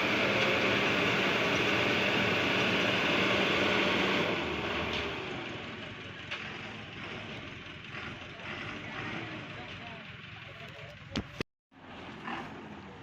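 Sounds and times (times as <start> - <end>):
vehicle engine under load: 0.0 - 13.0.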